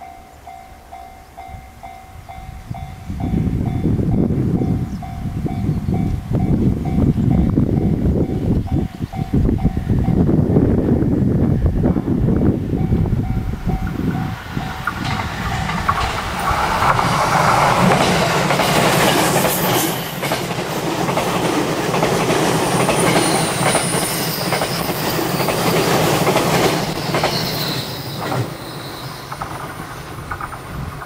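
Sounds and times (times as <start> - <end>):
train passing at speed: 0.0 - 31.0
wheels clacking over rail joints: 13.7 - 31.0.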